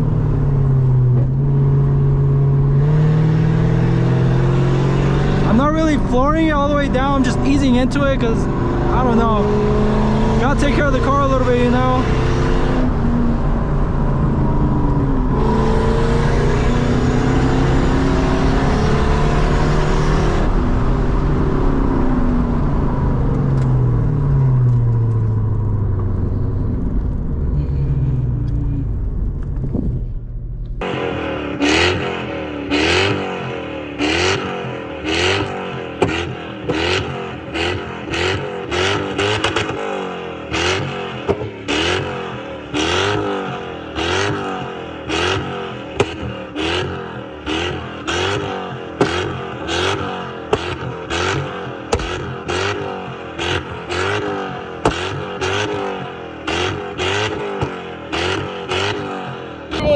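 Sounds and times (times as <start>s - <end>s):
car engine through loud exhaust: 0.0s - 59.9s
short sharp engine revs: 30.8s - 59.9s.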